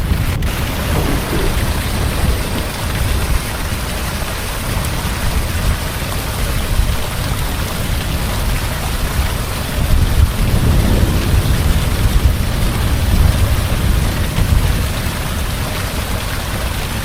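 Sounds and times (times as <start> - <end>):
deep rumble: 0.0 - 3.7
heavy rain falling: 0.0 - 4.2, 9.8 - 16.2.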